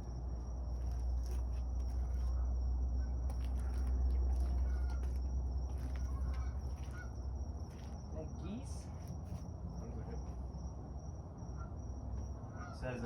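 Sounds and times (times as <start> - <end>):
steady low rumble: 0.0 - 12.5
geese calling faintly: 1.3 - 8.0, 12.5 - 13.0.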